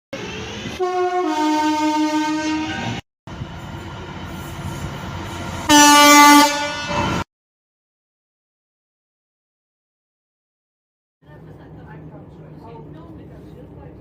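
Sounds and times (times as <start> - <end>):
train running noise: 0.1 - 7.2, 11.2 - 14.0
train horn blast: 0.8 - 3.0, 5.6 - 7.3
two-tone train horn: 0.8 - 3.0, 5.6 - 7.2.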